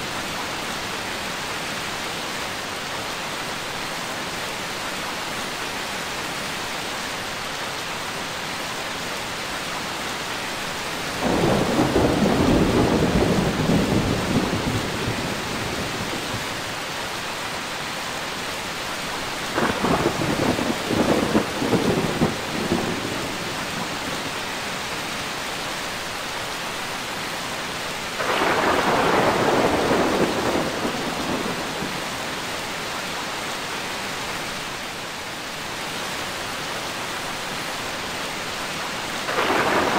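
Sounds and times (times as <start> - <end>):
heavy rain: 0.0 - 39.9
thunder rumbling: 11.2 - 16.6, 19.5 - 24.1, 28.2 - 32.2, 39.3 - 39.9.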